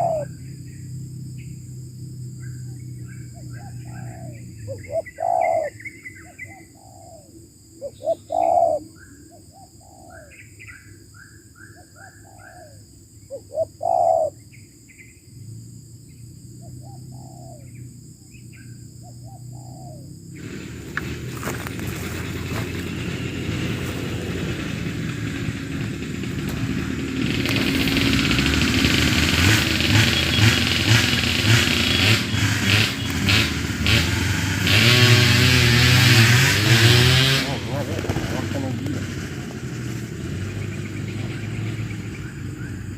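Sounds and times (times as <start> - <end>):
doves cooing: 0.0 - 0.8, 2.4 - 11.0, 11.8 - 14.5, 16.6 - 35.1, 36.6 - 42.9
passing vehicle: 0.0 - 11.2, 12.2 - 42.9
small birds chirping: 0.0 - 30.7, 40.0 - 42.9.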